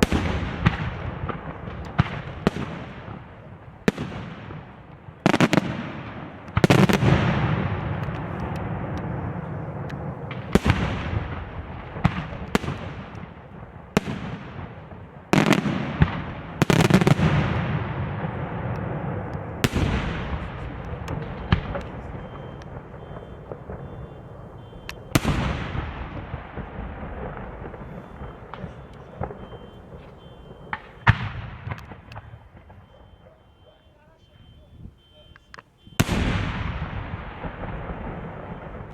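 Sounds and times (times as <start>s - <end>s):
fireworks bangs with echo: 0.0s - 38.9s.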